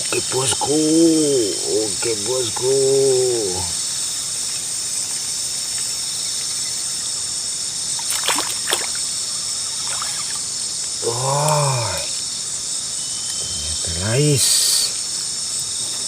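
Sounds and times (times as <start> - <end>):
crickets trilling: 0.0 - 16.0
sharp scrapes or splashes: 8.0 - 9.1, 9.7 - 10.5.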